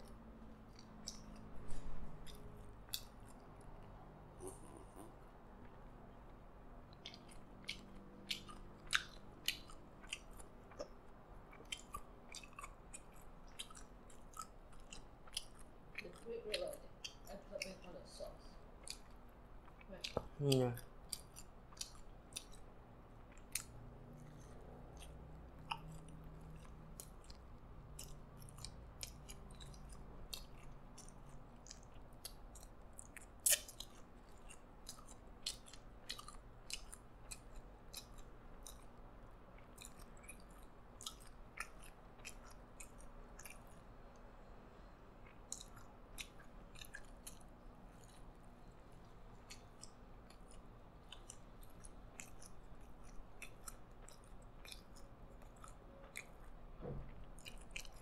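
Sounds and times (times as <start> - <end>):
wet mouth clicks: 0.0 - 5.8, 6.9 - 16.2, 23.3 - 38.9
person chewing: 0.0 - 17.8, 18.6 - 58.0.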